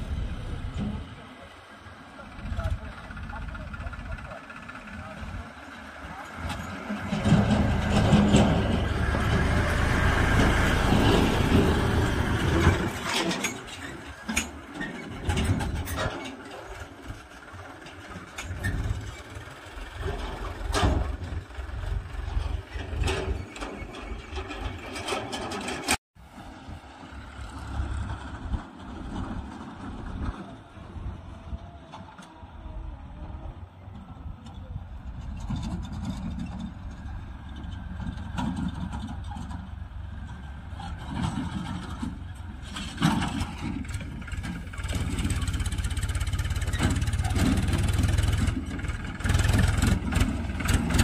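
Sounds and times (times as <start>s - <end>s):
tractor engine running: 0.0s - 51.0s
knocks and clatter: 6.2s - 26.0s, 34.4s - 51.0s.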